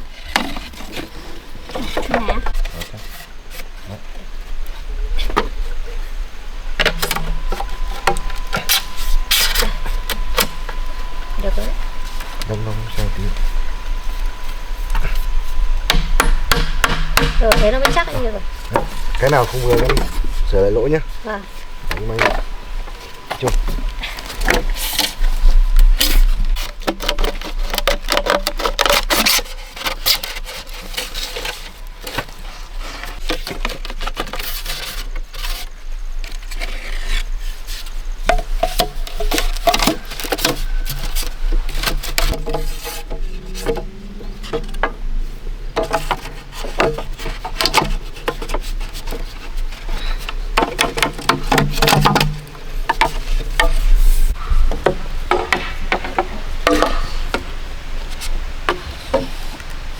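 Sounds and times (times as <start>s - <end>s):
bamboo rubbing and scraping: 0.0s - 59.9s
bamboo knocking: 15.8s - 25.2s, 38.2s - 45.0s, 45.7s - 54.0s, 54.7s - 57.6s.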